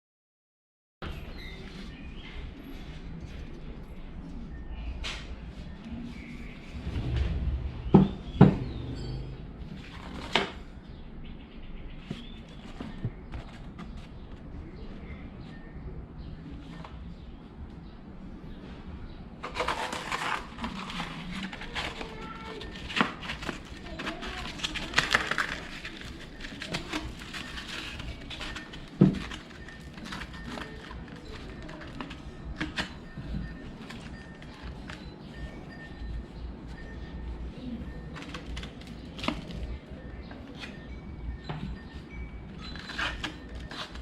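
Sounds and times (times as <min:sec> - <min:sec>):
tools rustling and scraping: 0:40.4 - 0:44.0.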